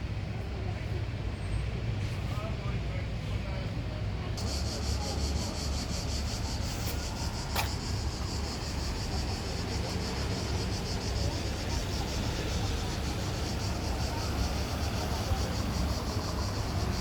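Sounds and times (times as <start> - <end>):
cicadas buzzing: 4.4 - 17.0.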